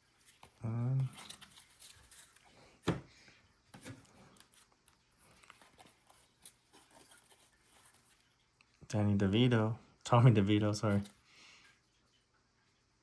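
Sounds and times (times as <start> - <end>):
cards rustling and clicking: 0.0 - 3.0, 3.7 - 8.2.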